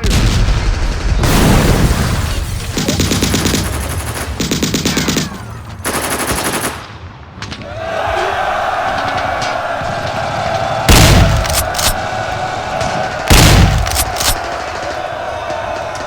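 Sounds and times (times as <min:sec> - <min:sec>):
heavy gun firing: 0:00.0 - 0:06.9, 0:10.9 - 0:12.0, 0:13.2 - 0:14.9
machine gun bursts: 0:02.8 - 0:06.7, 0:10.9 - 0:12.0, 0:13.3 - 0:14.8
blast rumbling: 0:10.7 - 0:12.0, 0:13.2 - 0:14.5.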